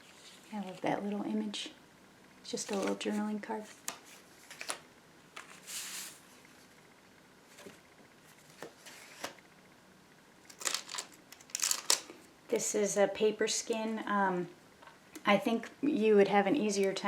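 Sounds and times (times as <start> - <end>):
paper swishing: 5.4 - 6.2
paper rustling and clicks: 10.5 - 12.1.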